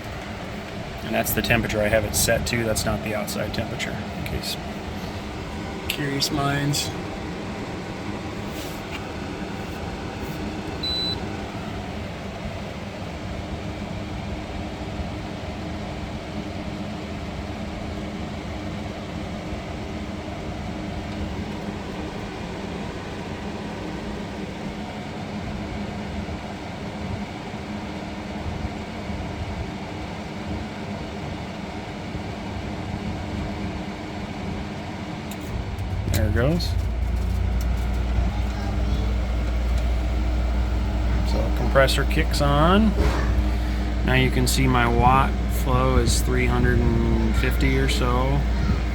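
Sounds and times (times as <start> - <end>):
air conditioner fan hum: 0.0 - 48.9
high beep: 10.8 - 11.2.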